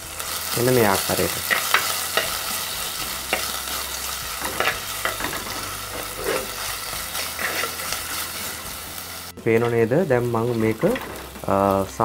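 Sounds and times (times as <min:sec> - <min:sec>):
food sizzling in oil: 0:00.0 - 0:12.0
spoon scraping a pot: 0:04.5 - 0:06.6, 0:07.2 - 0:08.0.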